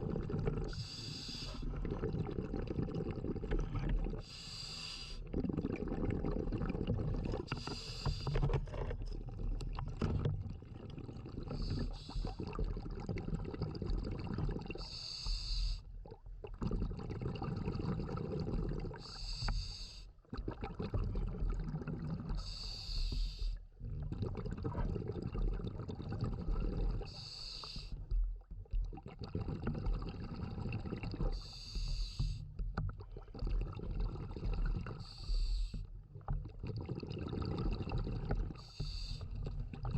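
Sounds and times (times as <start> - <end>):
exhaled air bubbling: 0.0 - 39.9
regulator breathing hiss: 0.8 - 1.6, 4.3 - 5.2, 7.5 - 8.3, 14.8 - 15.8, 19.1 - 20.1, 22.4 - 23.5, 27.1 - 27.9, 31.4 - 32.4, 35.0 - 35.8, 38.6 - 39.3.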